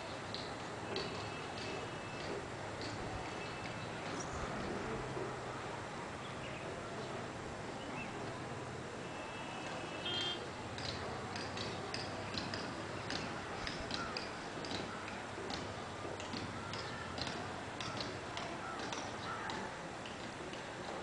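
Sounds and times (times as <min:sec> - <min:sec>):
steady background hiss: 0:00.0 - 0:11.3
birds chirping: 0:00.8 - 0:04.8, 0:06.1 - 0:08.4, 0:09.0 - 0:10.9
trilled bird call: 0:09.0 - 0:10.4.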